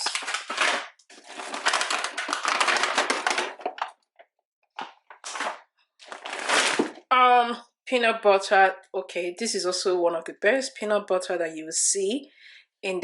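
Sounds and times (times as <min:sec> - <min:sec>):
plastic packaging crinkling: 0:00.0 - 0:04.2, 0:04.8 - 0:07.0.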